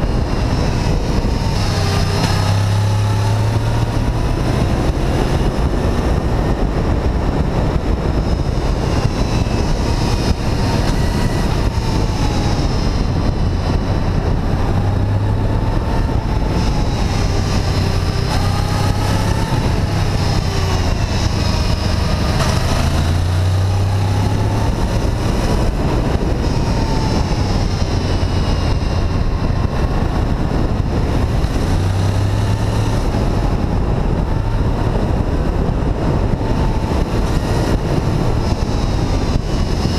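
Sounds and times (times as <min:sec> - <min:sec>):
motorcycle engine running: 0:00.0 - 0:39.9
wind noise: 0:00.0 - 0:39.9.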